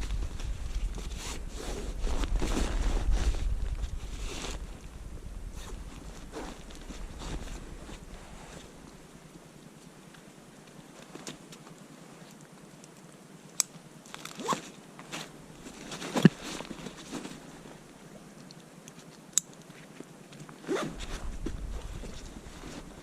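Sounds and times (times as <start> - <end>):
crunching and rustling: 0.0 - 9.0, 14.0 - 23.0
wind rumble on microphone: 0.0 - 9.4, 20.7 - 23.0.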